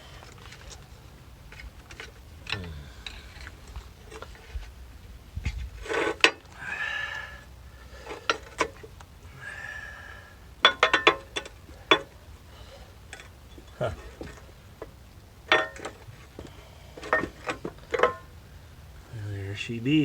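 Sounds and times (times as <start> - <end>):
rattle of clicks: 0.2 - 4.7
clicks and knocks of tools: 8.0 - 9.1, 10.6 - 12.2, 13.1 - 18.3.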